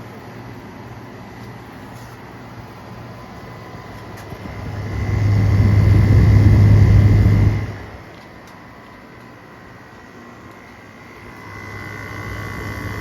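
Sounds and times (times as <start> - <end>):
air conditioner humming: 0.0 - 13.0
loud low hum: 3.2 - 8.2, 10.8 - 13.0.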